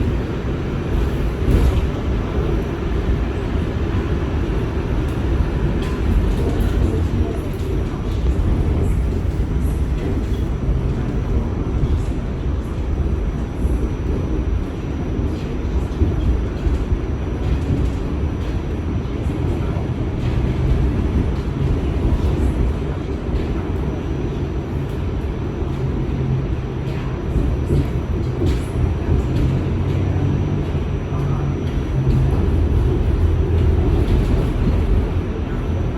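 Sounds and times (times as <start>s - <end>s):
subway train rumbling: 0.0s - 35.9s.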